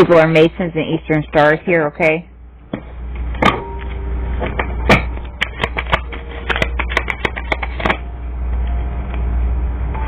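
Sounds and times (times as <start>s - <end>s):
steady low hum: 0.0s - 10.0s
cards being shuffled: 5.0s - 8.0s.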